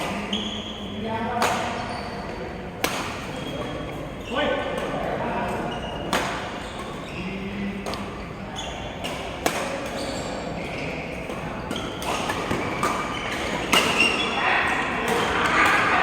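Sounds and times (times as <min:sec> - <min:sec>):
shoe squeaks on court: 0:09.9 - 0:11.0, 0:11.6 - 0:14.4
faint voices: 0:14.0 - 0:16.0.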